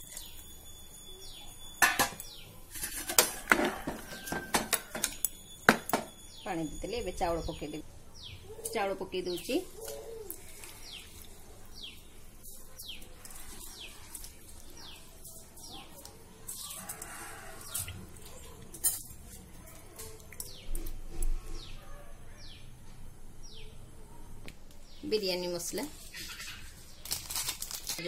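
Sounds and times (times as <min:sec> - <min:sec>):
bird chirping: 0:05.3 - 0:16.9.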